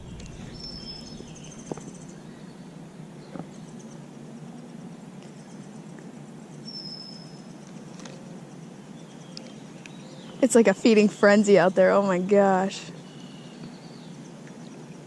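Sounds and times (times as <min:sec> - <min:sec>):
faint chirring trill: 0:00.0 - 0:05.9
low background hum: 0:00.0 - 0:15.0.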